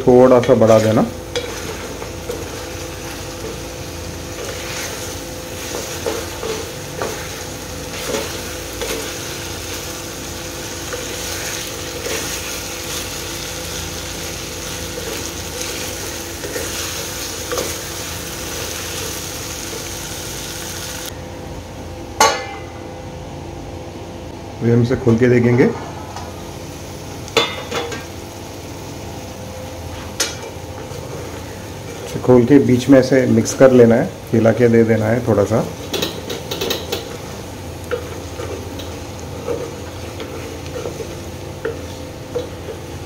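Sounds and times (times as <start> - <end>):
food sizzling in a pot: 0.6 - 21.1, 35.2 - 43.0.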